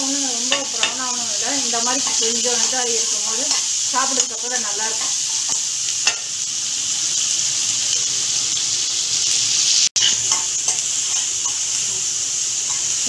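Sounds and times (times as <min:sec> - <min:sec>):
onions sizzling in hot oil: 0:00.0 - 0:13.0
spoon tapping pan: 0:00.4 - 0:01.2, 0:01.8 - 0:06.3, 0:10.0 - 0:12.0.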